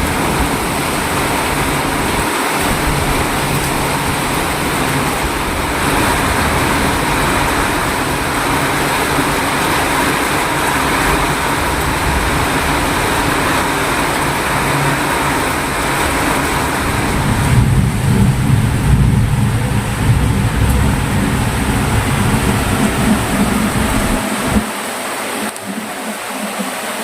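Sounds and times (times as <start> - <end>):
heavy rain pouring: 0.0 - 27.0
low rumble: 15.7 - 26.0.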